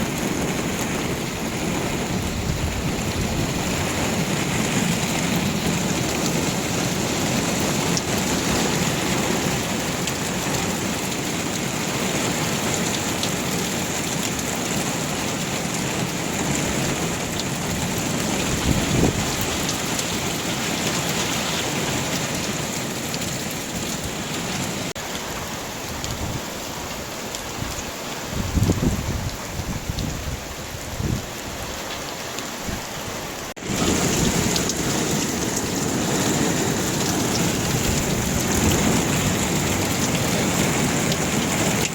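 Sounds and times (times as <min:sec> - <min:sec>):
low rumble of thunder: 0:00.0 - 0:06.6, 0:33.6 - 0:41.9
heavy rain pouring: 0:00.0 - 0:41.9.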